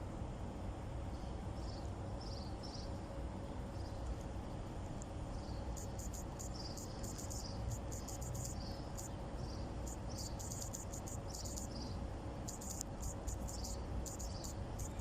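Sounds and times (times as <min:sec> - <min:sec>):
steady low rumble: 0:00.0 - 0:15.0
high-pitched chirping: 0:05.7 - 0:15.0.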